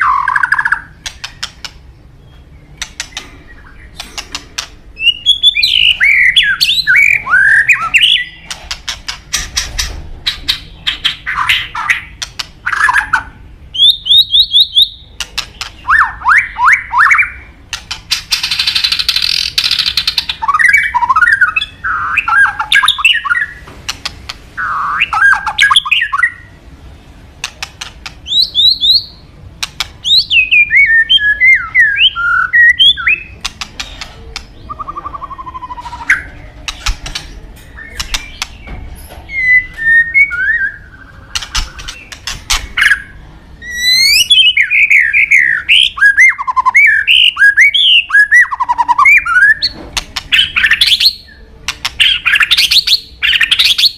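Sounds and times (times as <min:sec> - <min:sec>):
bird sharp clicks: 0:00.2 - 0:01.8, 0:02.8 - 0:04.8, 0:27.4 - 0:28.9, 0:29.6 - 0:30.2, 0:33.4 - 0:38.8, 0:41.3 - 0:43.0
bird singing whistled notes: 0:05.0 - 0:08.4, 0:28.2 - 0:29.2, 0:30.0 - 0:33.4, 0:34.6 - 0:36.4, 0:37.7 - 0:42.0, 0:42.8 - 0:53.9.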